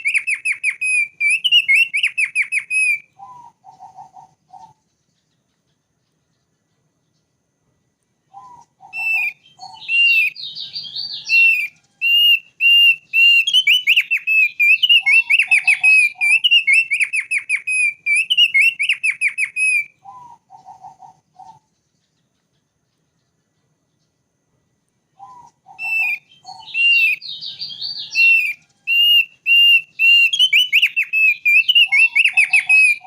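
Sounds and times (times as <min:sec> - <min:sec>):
bird rapid whistled notes: 0:00.0 - 0:04.8, 0:08.3 - 0:21.7, 0:25.2 - 0:33.0.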